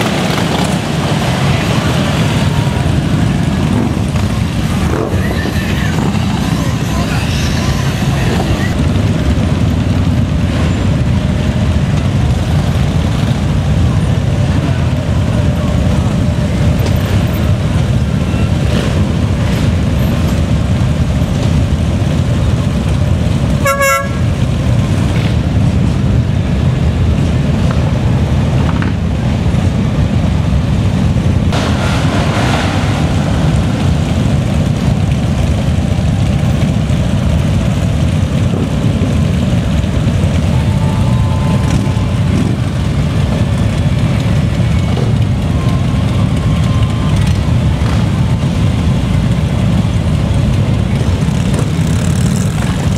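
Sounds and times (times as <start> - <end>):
motorcycle engines rumbling: 0.0 - 52.9
horn toot: 23.6 - 24.4.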